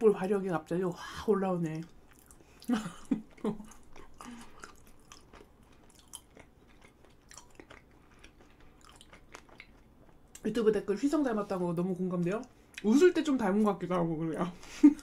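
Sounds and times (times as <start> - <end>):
chewing soft food: 1.6 - 10.5.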